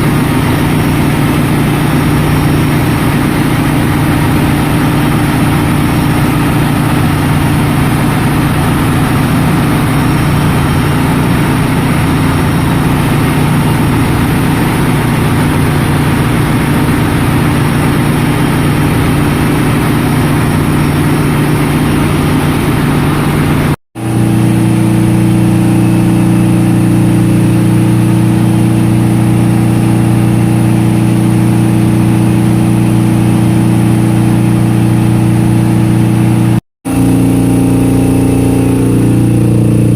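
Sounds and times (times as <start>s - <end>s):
engine room machinery droning: 0.0s - 39.9s.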